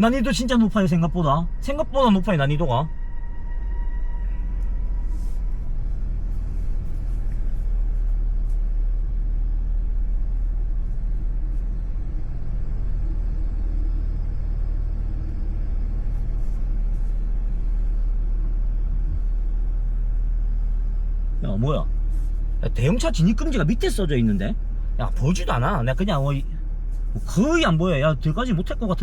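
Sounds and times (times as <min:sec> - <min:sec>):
vehicle engine low rumble: 0:00.0 - 0:29.0.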